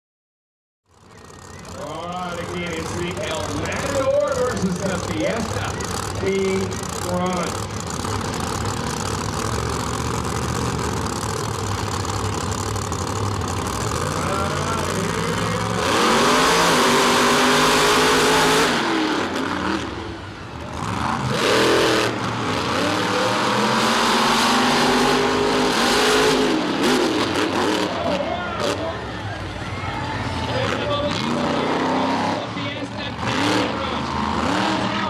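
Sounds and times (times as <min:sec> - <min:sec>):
monster truck engine revving: 0:00.9 - 0:35.0.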